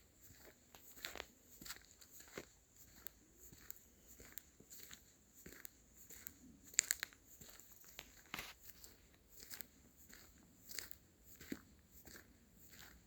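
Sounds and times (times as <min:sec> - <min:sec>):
footsteps crunching on leaf litter: 0:06.8 - 0:08.9.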